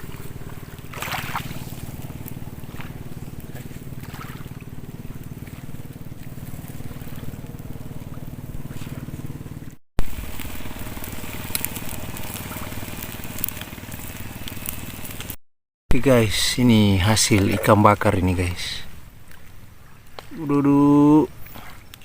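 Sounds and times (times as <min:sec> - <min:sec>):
sharp crackles and clicks: 0:00.0 - 0:15.4
engine humming: 0:00.0 - 0:22.0.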